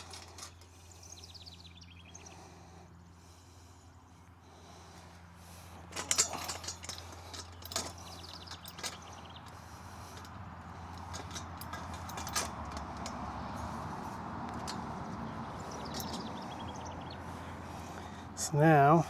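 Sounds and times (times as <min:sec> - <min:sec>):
metal parts clinking and knocking: 0:00.0 - 0:00.8, 0:05.8 - 0:17.0
low background hum: 0:00.0 - 0:19.0.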